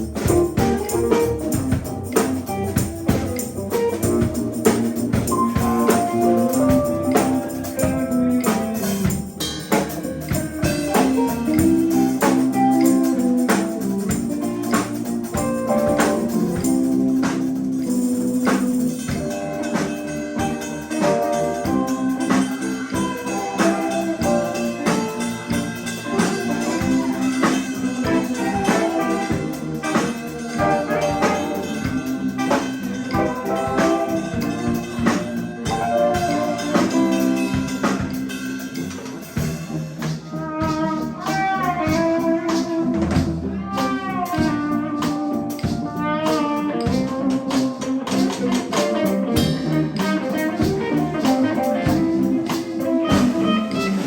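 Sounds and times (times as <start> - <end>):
live band instrumental jam: 0.0 - 54.0.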